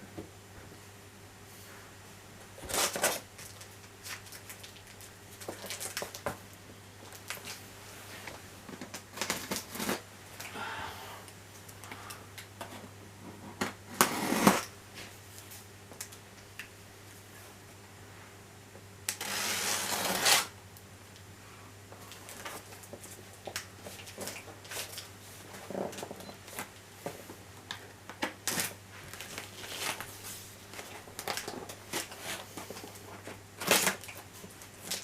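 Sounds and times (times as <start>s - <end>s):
cardboard scraping and tearing: 14.0s - 14.7s, 19.2s - 20.5s.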